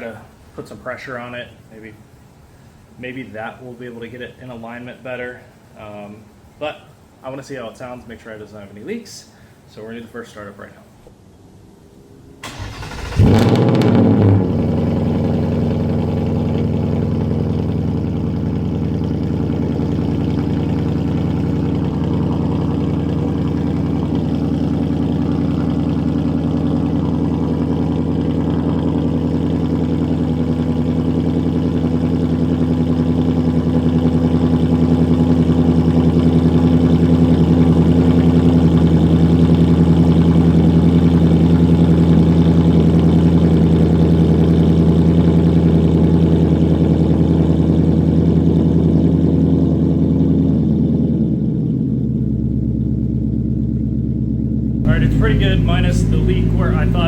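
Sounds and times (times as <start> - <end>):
car engine revving and idling: 12.4 - 57.0.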